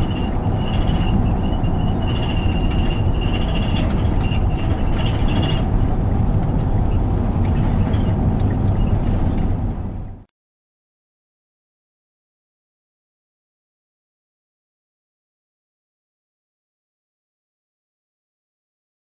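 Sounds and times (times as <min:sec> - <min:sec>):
steel wheels squealing on rails: 0:00.0 - 0:05.8, 0:06.9 - 0:09.3
train rumble: 0:00.0 - 0:10.3.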